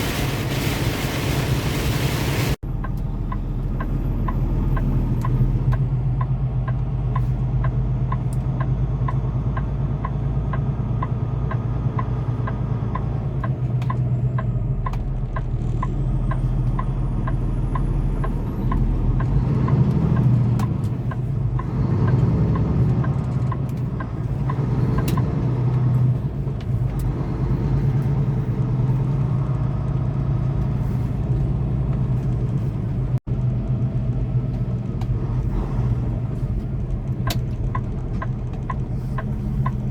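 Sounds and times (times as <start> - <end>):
truck engine drone: 0.0 - 39.9
light ticking: 2.7 - 28.1, 36.1 - 39.9.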